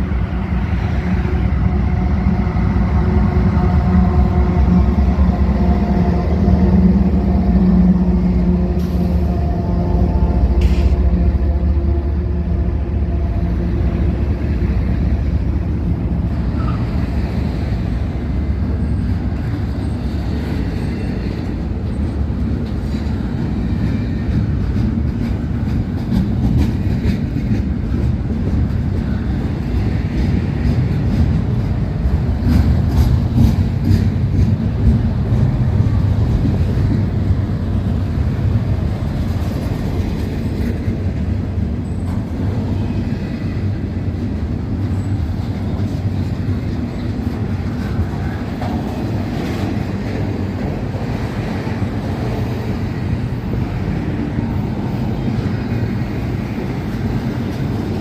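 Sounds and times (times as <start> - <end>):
freight train rumbling past: 0.0 - 58.0
train wheel clicks: 24.3 - 37.1.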